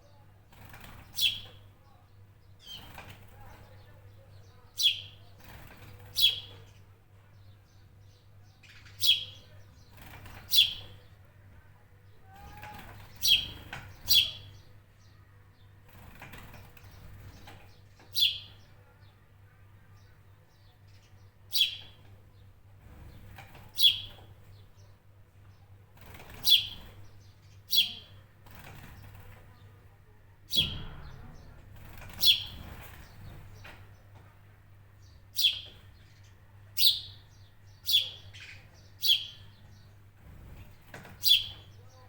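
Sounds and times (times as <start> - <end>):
bird chirping: 0.8 - 2.0, 2.6 - 5.3, 5.9 - 6.8, 7.4 - 11.2, 12.4 - 15.2, 16.6 - 18.7, 20.0 - 22.2, 23.8 - 24.9, 26.3 - 29.7, 30.5 - 34.2, 34.9 - 42.0.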